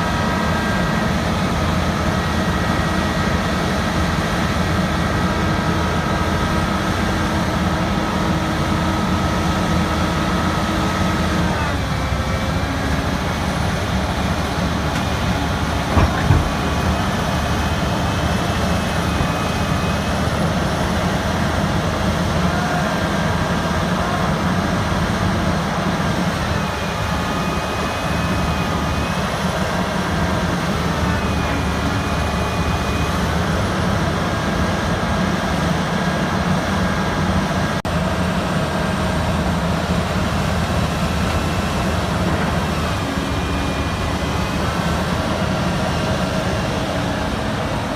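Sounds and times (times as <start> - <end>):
heavy diesel engine running: 0.0 - 47.9
short knock: 15.9 - 16.6.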